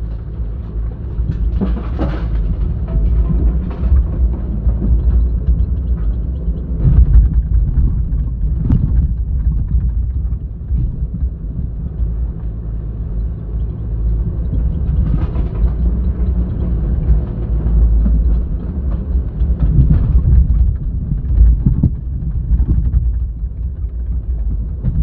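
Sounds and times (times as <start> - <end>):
excavator diesel engine rumbling: 0.0 - 25.0.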